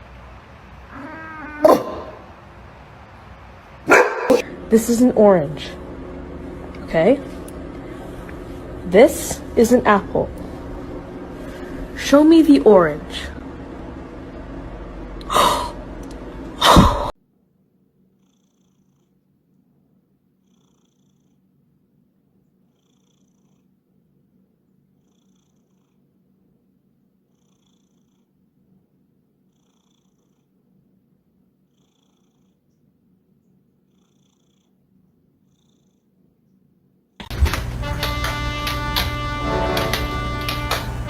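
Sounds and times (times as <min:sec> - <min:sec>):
cat purring: 0:00.9 - 0:02.4, 0:18.1 - 0:21.9, 0:22.5 - 0:36.4.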